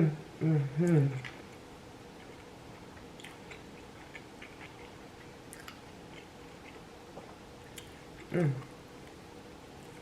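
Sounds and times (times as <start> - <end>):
quiet chewing of food: 0.9 - 10.0
mouth clicks and smacks: 3.1 - 8.7.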